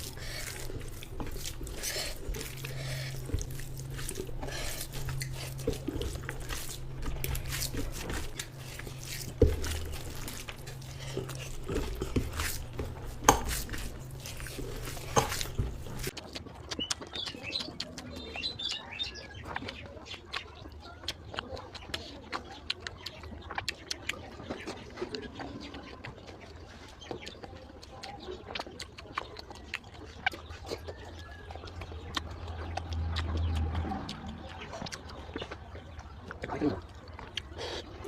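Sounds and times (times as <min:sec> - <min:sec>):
chewing and mouth smacking: 0:00.0 - 0:38.0
sharp mouth clicks: 0:15.2 - 0:18.8.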